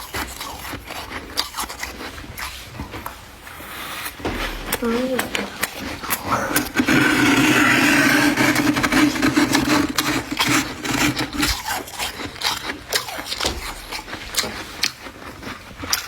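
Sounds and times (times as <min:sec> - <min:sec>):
frost crunching while chewed: 0:00.0 - 0:16.0
frost being scraped: 0:03.5 - 0:14.4.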